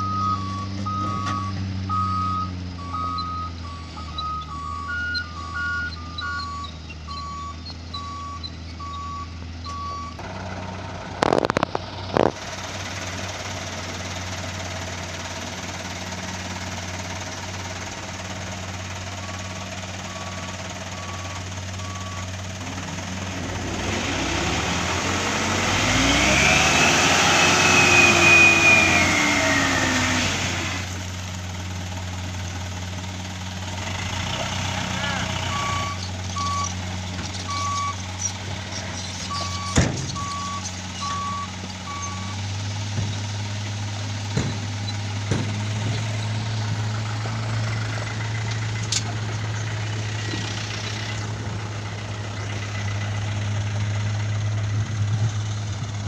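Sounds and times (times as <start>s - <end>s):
reversing beeper: 0.0s - 10.2s, 18.9s - 30.9s, 34.4s - 36.8s, 37.4s - 38.1s, 39.0s - 42.5s
diesel truck engine running: 0.0s - 56.0s
sharp knocks: 44.3s - 46.1s.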